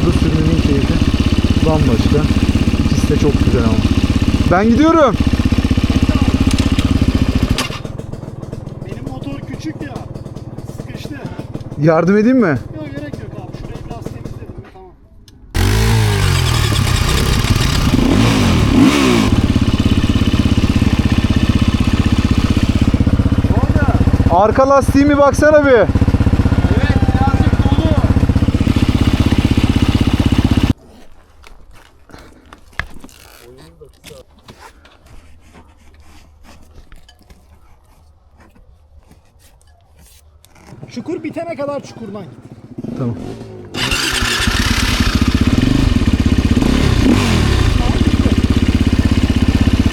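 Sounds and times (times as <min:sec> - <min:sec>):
dirt bike engine revving: 0:00.0 - 0:14.4, 0:15.5 - 0:30.8, 0:40.7 - 0:49.9
scraping and rustling: 0:30.8 - 0:42.7.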